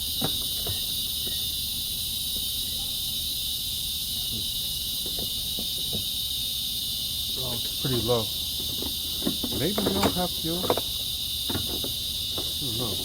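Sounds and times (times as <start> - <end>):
high-pitched insect chorus: 0.0 - 13.0
faint knocks: 8.6 - 13.0.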